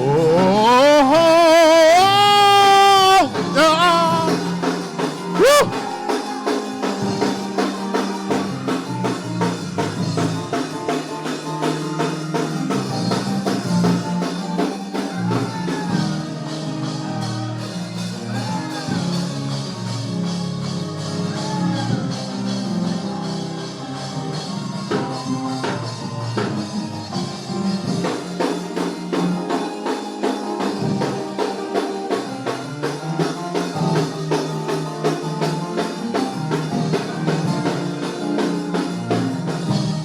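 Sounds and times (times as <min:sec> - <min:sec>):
person singing: 0:00.0 - 0:06.0
gospel band playing: 0:00.0 - 0:40.0.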